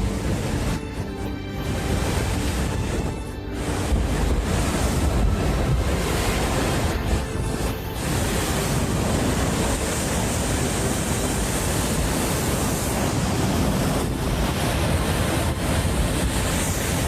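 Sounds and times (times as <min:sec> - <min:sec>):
surf: 0:00.0 - 0:17.0
wind buffeting microphone: 0:00.0 - 0:17.0
wind rushing: 0:00.0 - 0:17.0.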